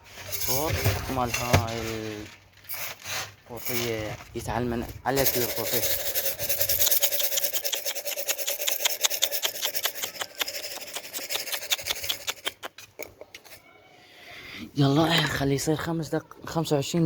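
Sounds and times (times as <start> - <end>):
tin can rattling: 0.2 - 12.9.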